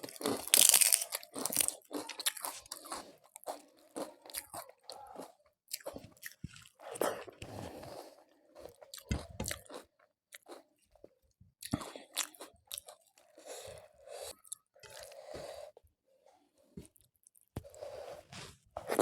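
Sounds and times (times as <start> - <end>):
crisp crunching and chewing: 0.0 - 7.4.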